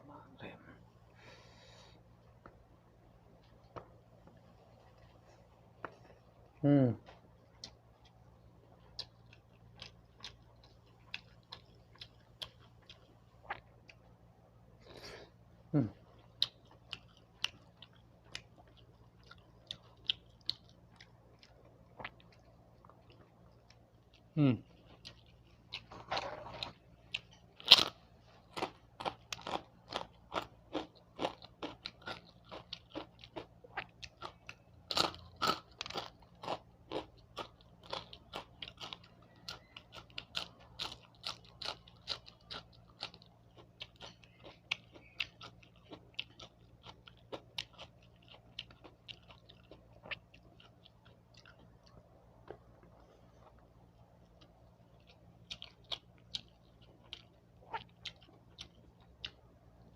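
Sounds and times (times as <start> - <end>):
chewing crunchy fried food: 2.1 - 59.9.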